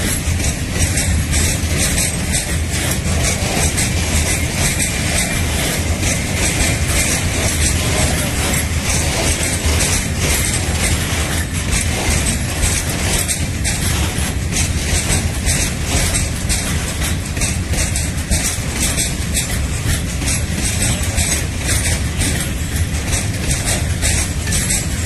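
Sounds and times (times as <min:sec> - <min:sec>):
constant low hum: 0:00.0 - 0:25.0
freight train rolling on track: 0:00.0 - 0:25.0.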